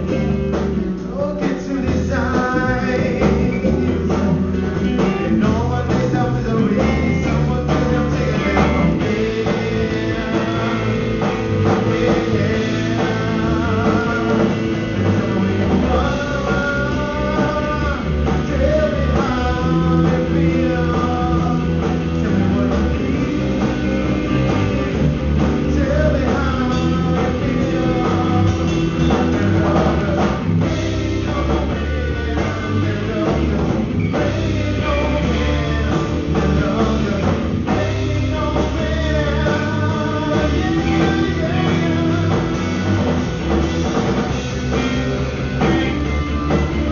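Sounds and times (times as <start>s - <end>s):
person singing: 0.0s - 43.1s
live rock band playing: 0.0s - 46.9s.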